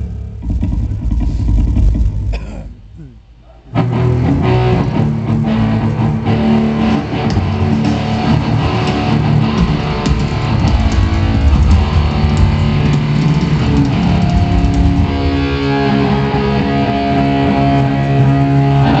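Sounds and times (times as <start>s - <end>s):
electric guitars strumming chords: 3.7s - 19.0s
rock band playing: 3.8s - 19.0s.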